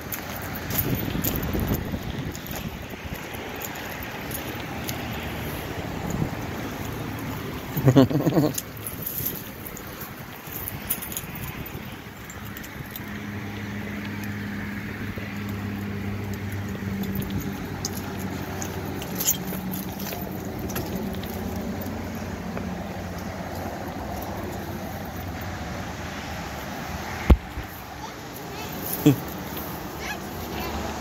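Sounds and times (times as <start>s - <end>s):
road noise: 0.0s - 31.0s.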